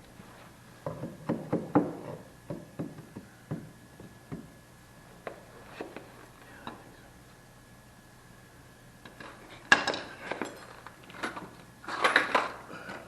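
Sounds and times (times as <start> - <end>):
knocks and clunks of hard objects: 0.8 - 4.5.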